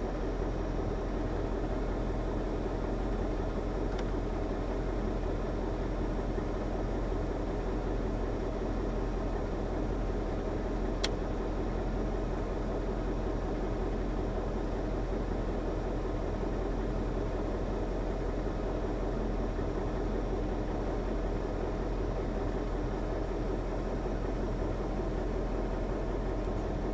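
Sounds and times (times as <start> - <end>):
truck diesel engine running: 0.0 - 26.9
sharp click: 11.0 - 11.2.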